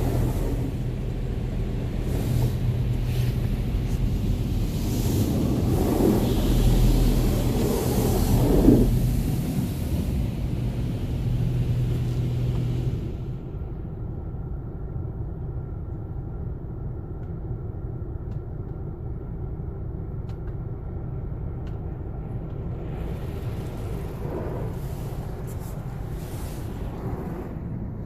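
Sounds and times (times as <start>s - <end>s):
spraying water hiss: 0.0s - 13.3s, 22.7s - 27.7s
steady low hum: 0.0s - 28.0s
steady low rumble: 0.0s - 28.0s.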